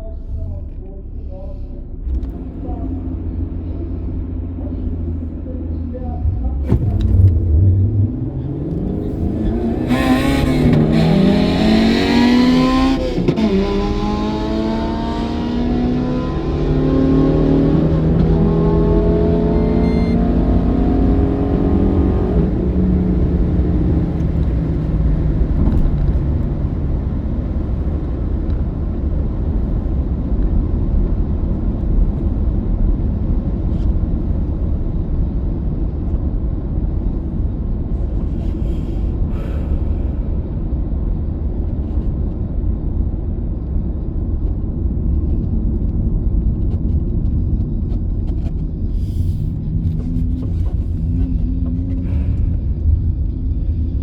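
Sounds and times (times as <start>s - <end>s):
car engine revving at full throttle: 2.1s - 38.8s.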